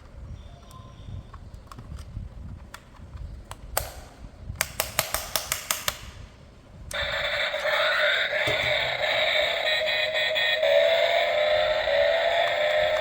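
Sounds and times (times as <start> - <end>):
hard plastic clicking: 1.3 - 6.1.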